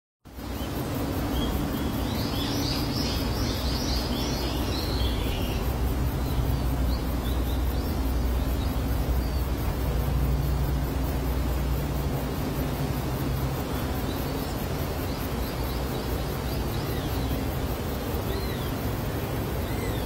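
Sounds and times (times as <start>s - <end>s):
steady low hum: 0.3s - 20.0s
birds chirping: 0.5s - 10.8s, 12.5s - 20.0s.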